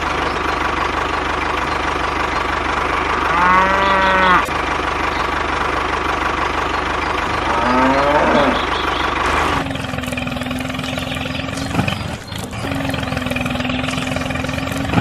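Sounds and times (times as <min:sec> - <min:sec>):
small engine running: 0:00.0 - 0:15.0
cow mooing: 0:03.0 - 0:04.6, 0:07.3 - 0:15.0
pitched animal call: 0:03.1 - 0:04.6, 0:07.3 - 0:15.0.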